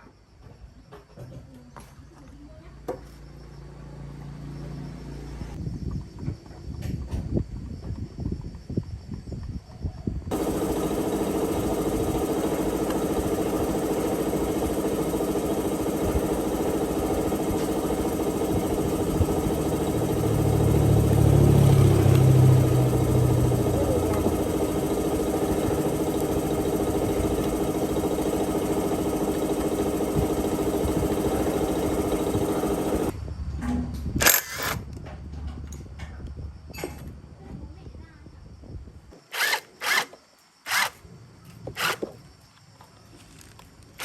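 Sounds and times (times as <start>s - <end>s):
motor humming: 10.3s - 33.2s, 40.7s - 41.0s.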